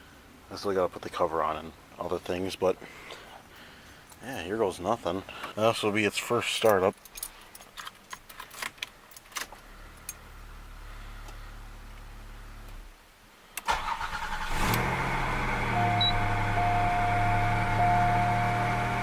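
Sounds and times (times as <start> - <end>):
car engine idling: 13.7 - 19.0
low hum: 14.8 - 19.0.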